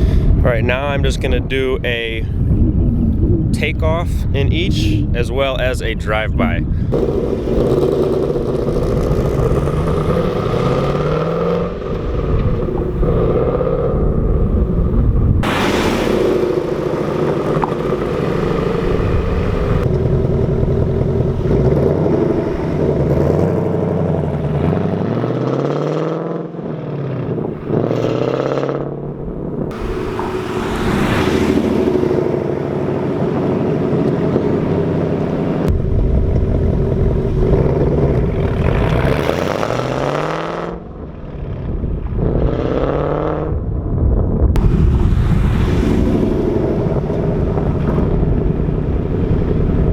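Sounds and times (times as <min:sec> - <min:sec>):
car engine revving: 0:06.9 - 0:43.6, 0:44.6 - 0:49.9.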